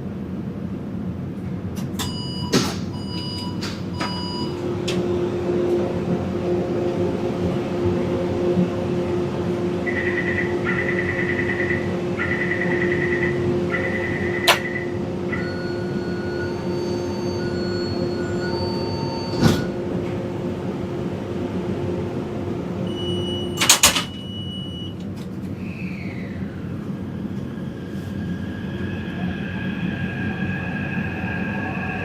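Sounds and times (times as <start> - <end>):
train hum: 0.0 - 32.0
rising train motor tones: 1.8 - 32.0
short warning beeps: 2.0 - 4.6, 9.9 - 19.7, 22.9 - 25.0
sliding doors closing: 13.8 - 20.3, 22.8 - 25.6.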